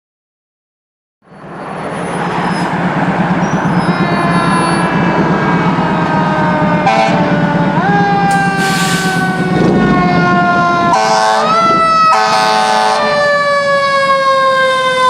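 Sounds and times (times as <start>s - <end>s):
fire engine running: 1.2s - 15.0s
siren: 3.3s - 15.0s.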